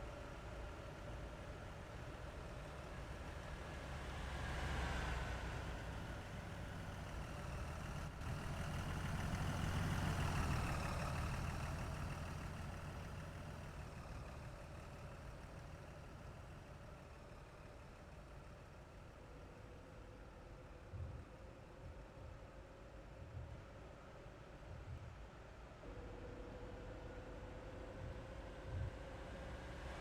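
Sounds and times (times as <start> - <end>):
trucks passing on highway: 0.0 - 21.2.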